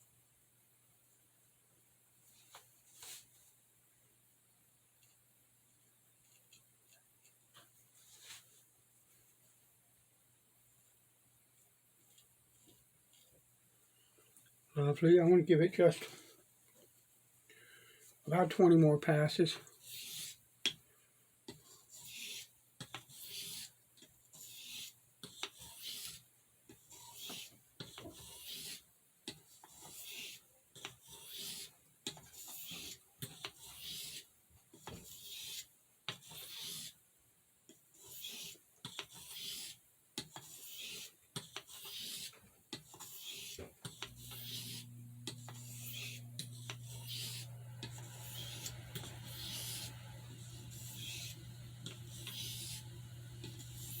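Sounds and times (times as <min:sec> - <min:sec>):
blade scraping on oilstone: 0:26.9 - 0:28.8, 0:36.2 - 0:36.9, 0:38.0 - 0:39.8, 0:40.4 - 0:54.0.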